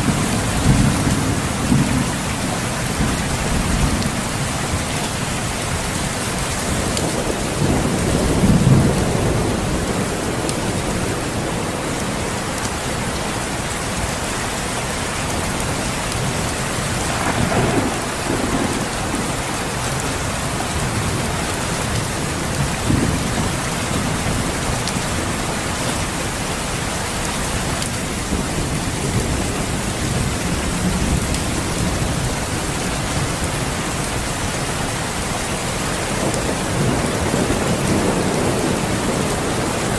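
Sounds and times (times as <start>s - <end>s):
thunder rumbling: 0.0s - 12.6s, 15.3s - 26.3s, 35.1s - 39.9s
steady rain: 0.0s - 39.9s.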